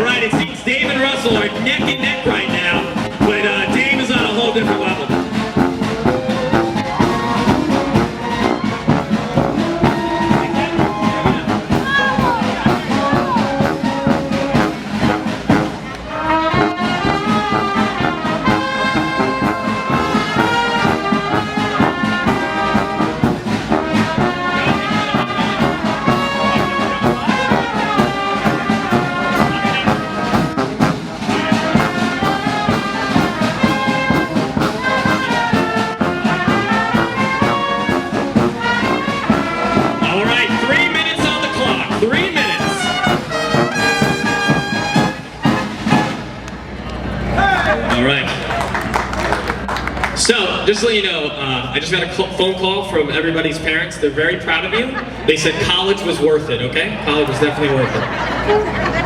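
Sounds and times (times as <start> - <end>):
trumpet and trombone melody: 0.0 - 46.4
brass band music: 0.0 - 47.4.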